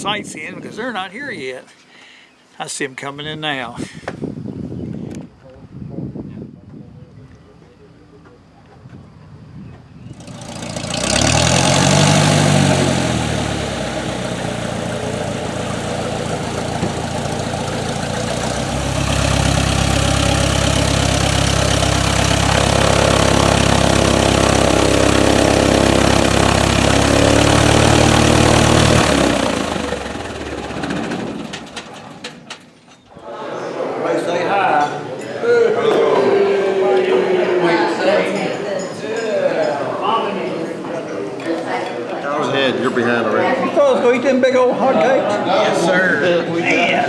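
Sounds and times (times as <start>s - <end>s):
propeller airplane engine: 10.2s - 32.8s.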